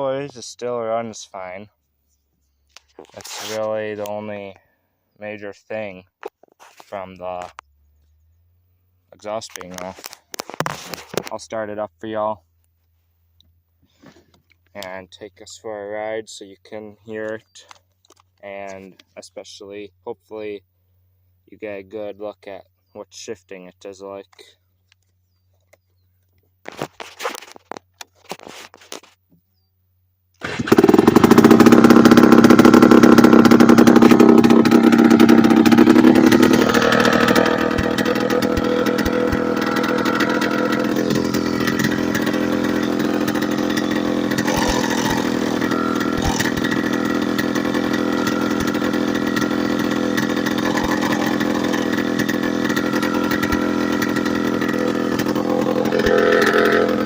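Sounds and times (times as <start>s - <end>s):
two-stroke engine running: 30.4s - 57.0s.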